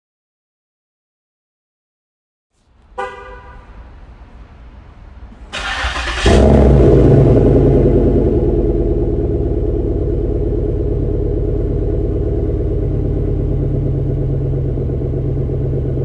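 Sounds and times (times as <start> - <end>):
loud engine idling: 2.8 - 16.0.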